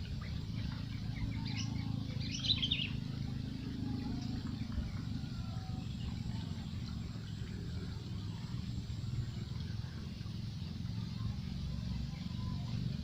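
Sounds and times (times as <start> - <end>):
steady low rumble: 0.0 - 13.0
bird chirping: 0.2 - 8.4.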